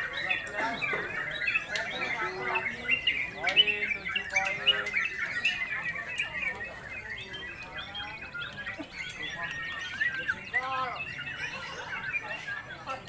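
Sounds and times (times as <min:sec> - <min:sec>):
birds singing: 0:00.0 - 0:13.0.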